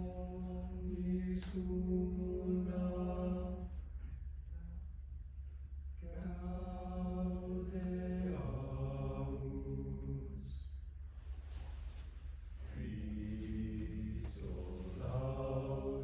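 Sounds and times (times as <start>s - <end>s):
choir singing held chords: 0.0s - 3.8s, 6.0s - 10.6s, 12.7s - 16.0s
low hum: 0.0s - 16.0s.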